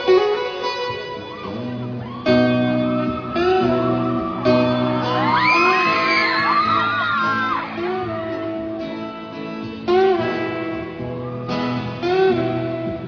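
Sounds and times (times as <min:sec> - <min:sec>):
electric guitar through speakers: 0:00.0 - 0:13.0
high voices screaming: 0:01.4 - 0:08.0.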